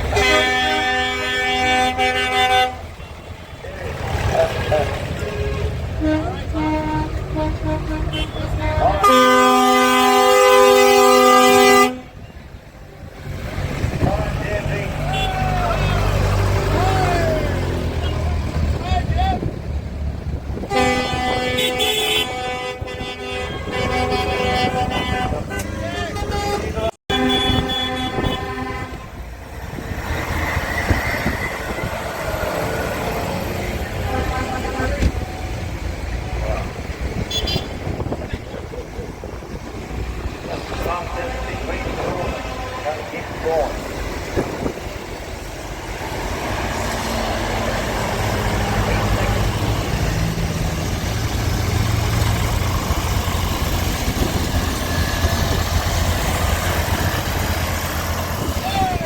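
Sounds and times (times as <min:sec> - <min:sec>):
tractor engines rumbling: 0:00.0 - 0:59.0
horn note: 0:00.1 - 0:02.9, 0:05.3 - 0:12.2, 0:20.6 - 0:29.2, 0:33.8 - 0:35.3.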